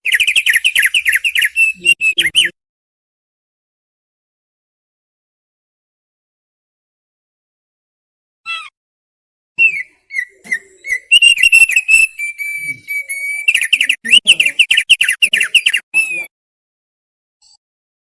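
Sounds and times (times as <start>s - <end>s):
bird singing whistles: 0.0s - 2.5s, 9.6s - 16.3s.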